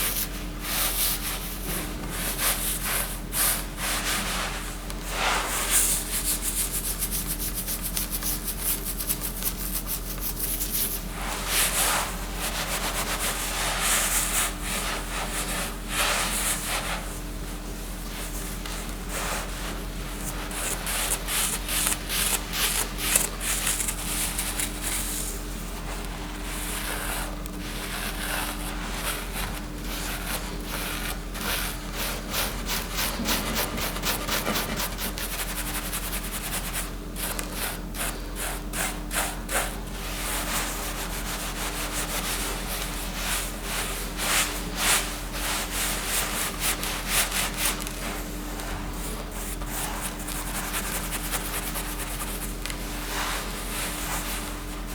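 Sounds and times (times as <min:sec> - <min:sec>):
steady low hum: 0:08.8 - 0:54.9
rapid scraping strokes: 0:29.9 - 0:36.4.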